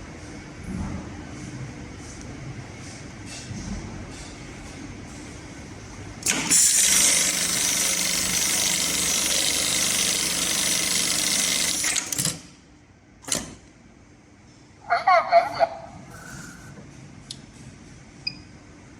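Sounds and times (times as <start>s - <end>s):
sewing machine running: 6.2s - 12.5s.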